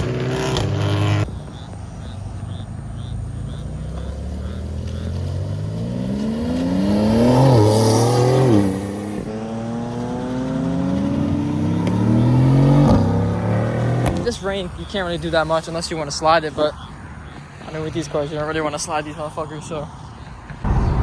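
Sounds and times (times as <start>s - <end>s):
car engine accelerating hard: 0.0s - 16.3s.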